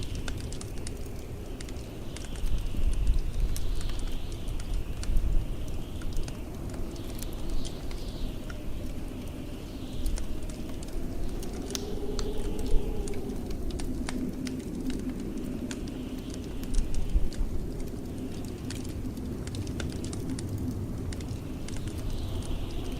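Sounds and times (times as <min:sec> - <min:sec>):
wind howling: 0:00.0 - 0:22.9
wood fire crackling and popping: 0:00.0 - 0:22.9.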